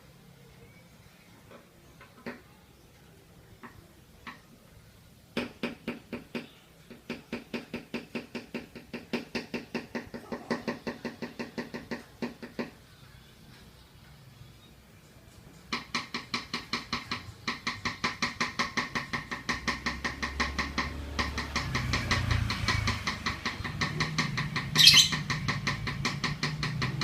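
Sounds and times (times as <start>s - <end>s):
lovebird chirping and chattering: 24.6s - 25.5s.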